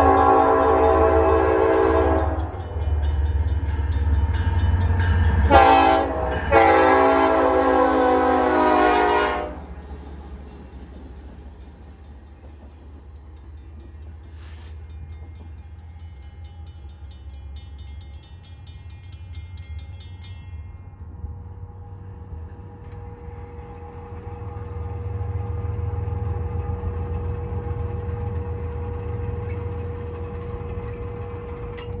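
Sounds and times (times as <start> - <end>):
train rumbling past: 0.0 - 32.0
wheels clicking over rails: 9.7 - 20.8.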